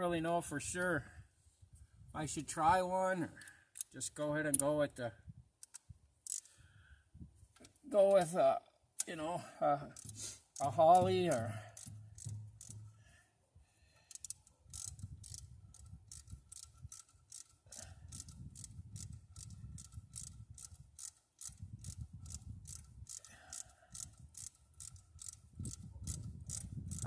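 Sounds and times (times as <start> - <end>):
ratchet wrench clicking: 5.6 - 6.5, 9.9 - 13.0, 14.0 - 27.0.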